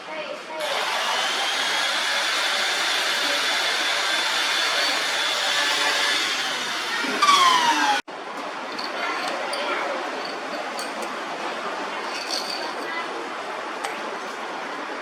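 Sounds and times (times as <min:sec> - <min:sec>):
power tool running: 0:00.6 - 0:08.1.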